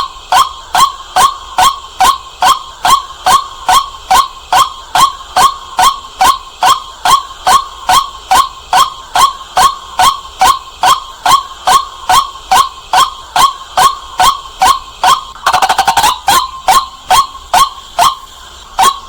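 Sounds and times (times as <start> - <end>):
waterhen calling kwak: 11.7 - 19.0.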